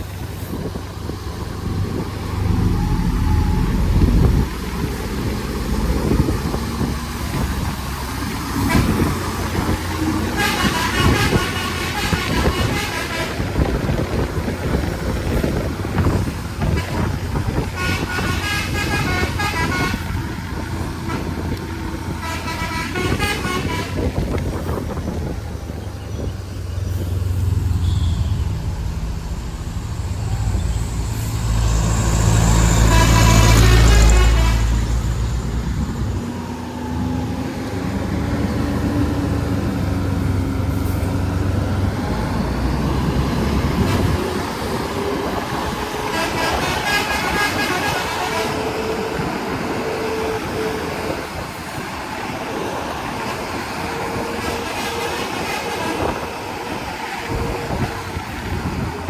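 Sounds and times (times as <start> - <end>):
large engine rumbling: 0.0 - 59.0
vehicle horn: 10.2 - 13.7, 16.6 - 20.2, 21.1 - 24.2, 27.7 - 28.8, 32.7 - 35.0, 46.0 - 51.2.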